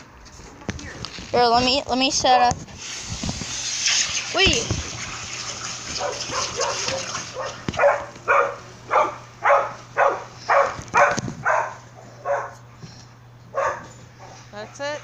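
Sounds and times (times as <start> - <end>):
dog barking: 6.0 - 12.6, 13.5 - 14.4.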